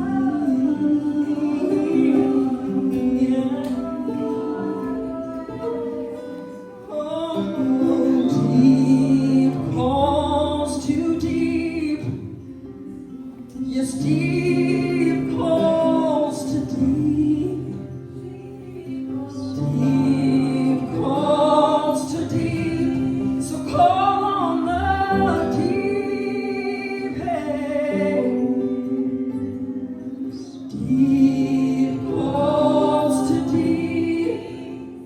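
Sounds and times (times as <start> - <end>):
woman singing: 0.0 - 35.0.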